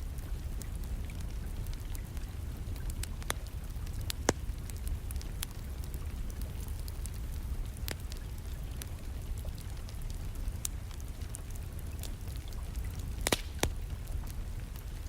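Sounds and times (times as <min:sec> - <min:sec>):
rain rumble: 0:00.0 - 0:15.0
wood fire crackling: 0:00.0 - 0:15.0.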